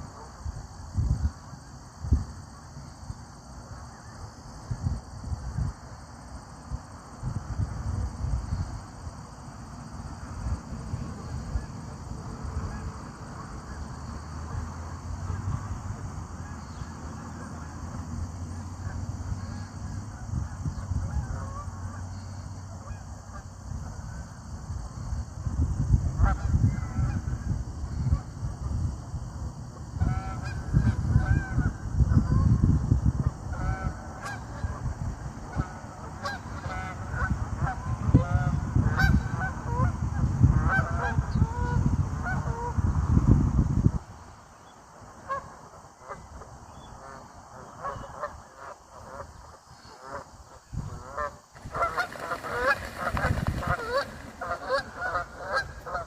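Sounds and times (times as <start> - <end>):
geese honking: 35.5 - 39.9, 47.0 - 56.0.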